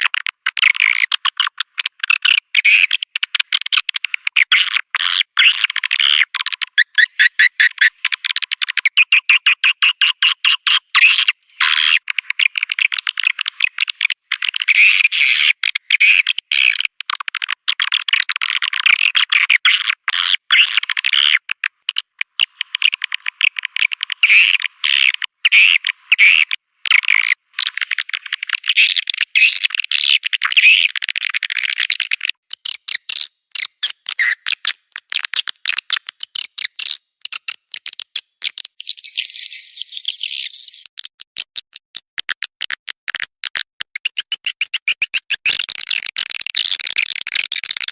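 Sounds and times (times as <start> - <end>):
sharp rapid clicking: 32.5 - 38.8, 40.8 - 47.9
swiftlets chirping and twittering: 32.5 - 41.0, 43.9 - 47.9.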